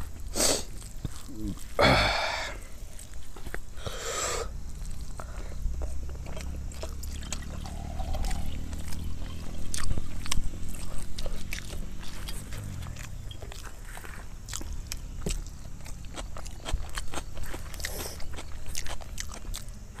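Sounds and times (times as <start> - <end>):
person chewing food: 0.0 - 20.0
hissing breath through mouth: 0.3 - 0.8, 3.7 - 4.6.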